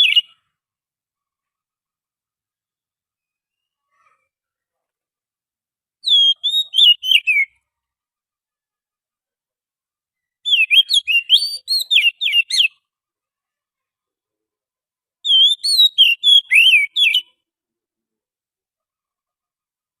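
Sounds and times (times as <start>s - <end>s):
bird singing whistled notes: 0.0s - 0.4s, 3.2s - 3.8s, 6.0s - 7.6s, 10.2s - 12.8s, 15.3s - 17.4s.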